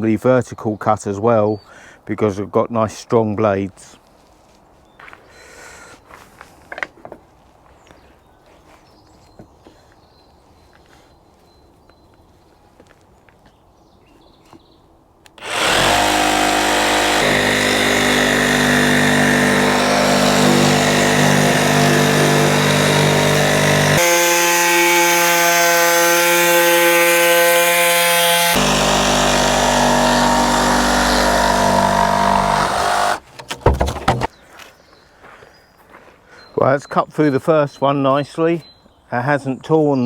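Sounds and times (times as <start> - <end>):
jigsaw cutting insulation board: 15.4 - 34.3
knocks: 32.2 - 34.3.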